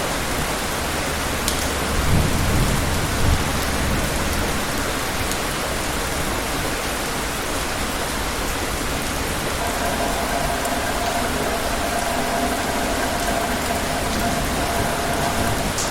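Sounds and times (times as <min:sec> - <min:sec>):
heavy rain falling: 0:00.0 - 0:15.9
faint steady tone: 0:09.6 - 0:15.9.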